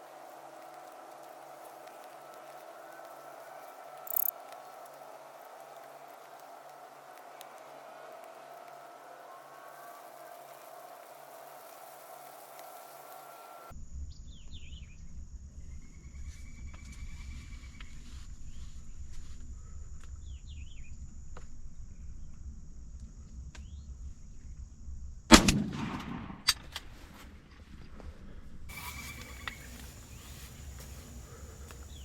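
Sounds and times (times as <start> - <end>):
high insect drone: 0.0 - 14.8, 28.7 - 32.0
small birds chirping: 4.0 - 4.3, 28.7 - 32.0
sharp clicks: 4.1 - 4.3
gunshot with echo: 25.3 - 26.7.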